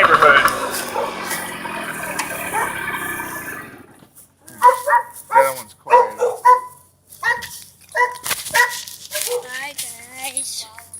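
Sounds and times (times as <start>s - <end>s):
motor hum: 0.0s - 4.1s
dog barking: 0.6s - 1.3s, 2.4s - 2.8s, 4.6s - 9.6s.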